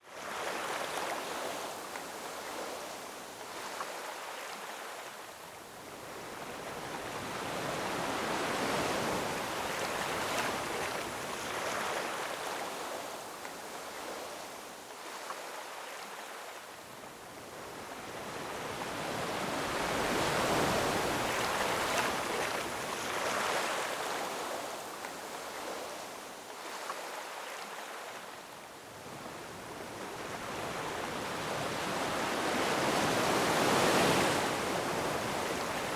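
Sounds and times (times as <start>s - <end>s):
ocean surf washing over rocks: 18.5s - 24.9s.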